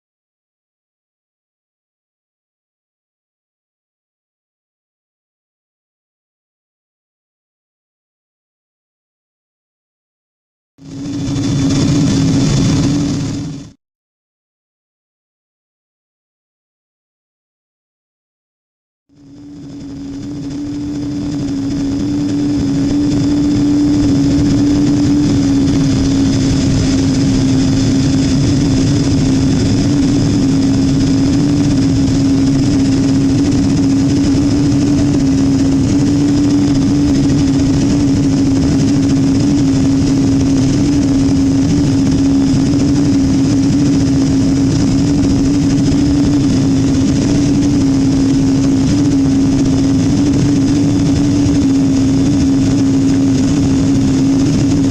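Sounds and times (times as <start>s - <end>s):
airplane cabin drone: 10.8s - 13.8s, 19.1s - 54.9s
faint high engine whine: 10.8s - 13.8s, 19.1s - 54.9s.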